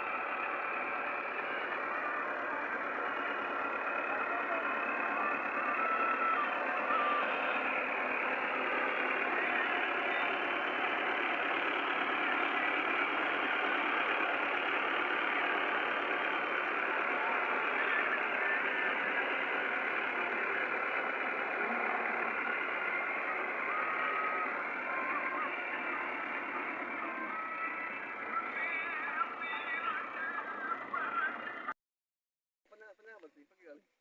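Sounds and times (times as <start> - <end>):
diesel tractor engine running: 0.0 - 31.8.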